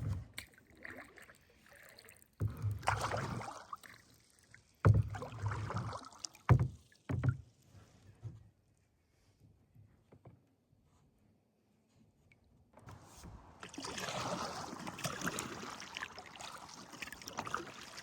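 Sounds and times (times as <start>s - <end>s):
paddle strokes splashing in water: 0.0s - 7.5s, 13.1s - 18.0s.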